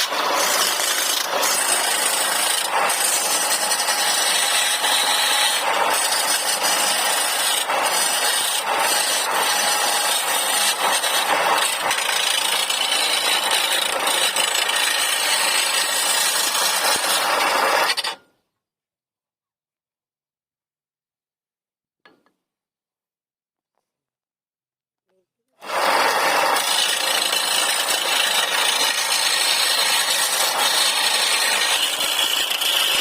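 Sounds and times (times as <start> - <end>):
power tool cutting wood: 0.0 - 18.2, 25.6 - 33.0.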